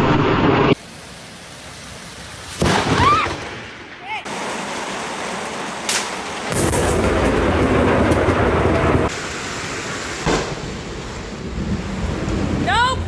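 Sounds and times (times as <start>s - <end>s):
steady rain: 0.8s - 3.5s, 4.3s - 13.0s
thunder crack: 2.5s - 13.0s
low rumble of thunder: 6.5s - 9.1s.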